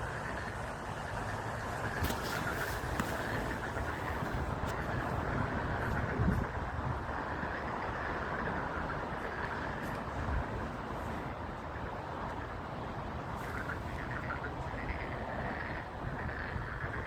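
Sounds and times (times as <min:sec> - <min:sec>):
chorus of frogs calling: 0:00.0 - 0:12.6, 0:13.2 - 0:17.0
wind rumbling on microphone: 0:00.0 - 0:17.0.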